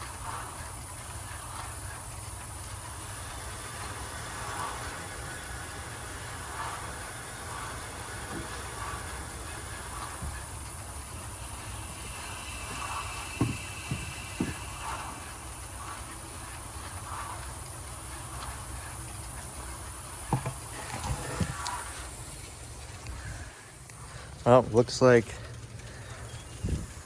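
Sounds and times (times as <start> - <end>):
low background rumble: 0.0 - 27.0
sprinklers spraying with a hiss: 0.0 - 27.0
short knocks: 20.3 - 21.6.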